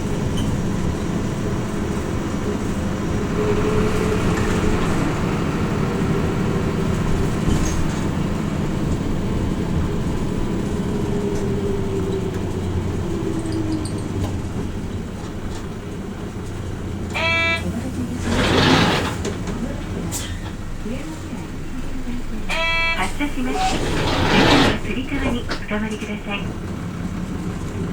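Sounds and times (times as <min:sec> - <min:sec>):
bus diesel engine: 0:00.0 - 0:27.9
road noise: 0:00.0 - 0:27.9
short electronic tone: 0:17.2 - 0:17.6, 0:22.5 - 0:24.4.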